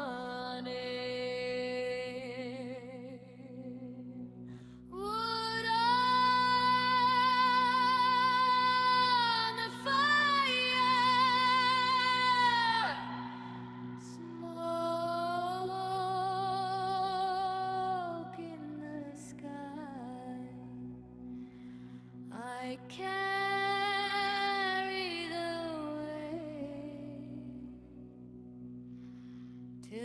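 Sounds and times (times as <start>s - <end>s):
wordless singing with vibrato: 0.0s - 28.0s.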